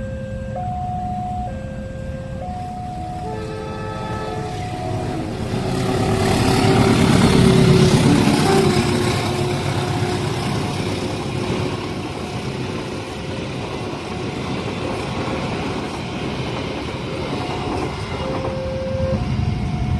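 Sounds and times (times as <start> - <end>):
crossing warning chime: 0.0 - 10.6, 17.0 - 19.9
vehicle passing by: 4.3 - 10.4.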